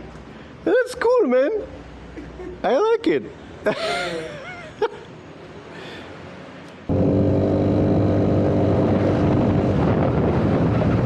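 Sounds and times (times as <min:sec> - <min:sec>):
scooter engine running: 0:06.9 - 0:11.0.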